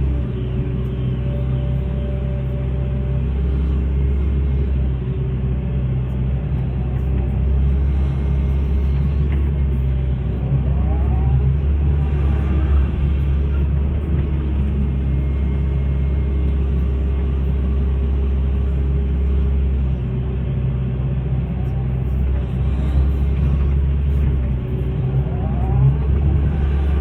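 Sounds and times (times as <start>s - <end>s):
excavator diesel engine rumble: 0.0s - 27.0s.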